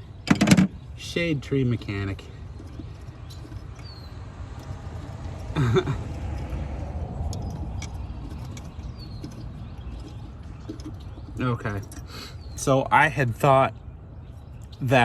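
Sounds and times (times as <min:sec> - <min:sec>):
steady low rumble: 0:00.0 - 0:14.3.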